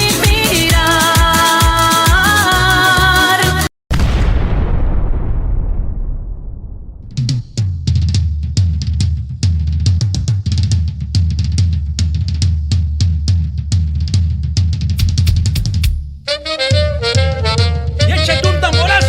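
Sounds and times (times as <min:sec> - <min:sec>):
fast drum kit beat: 0:00.0 - 0:03.7, 0:07.1 - 0:19.0
booming effect: 0:03.9 - 0:08.0
deep bass line: 0:14.8 - 0:19.0.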